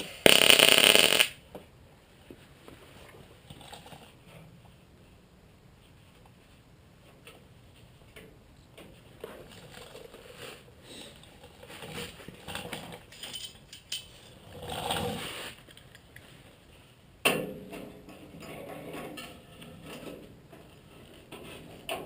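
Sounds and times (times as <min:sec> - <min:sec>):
hand tools clinking and scraping: 0:09.2 - 0:15.8.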